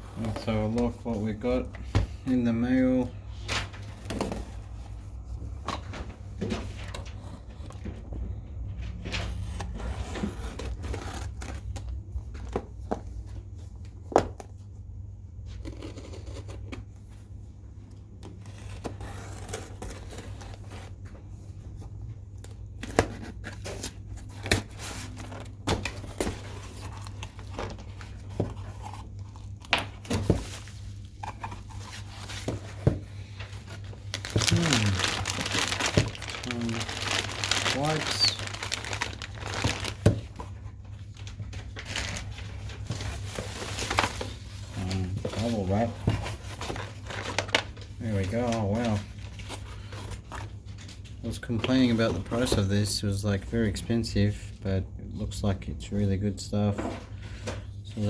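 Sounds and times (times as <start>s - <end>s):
packaging tearing and rustling: 30.4s - 50.3s.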